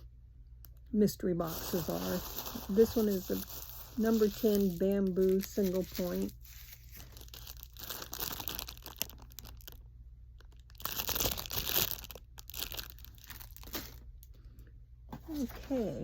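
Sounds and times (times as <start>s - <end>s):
packaging rustling and crackling: 1.4s - 9.8s, 10.4s - 14.1s.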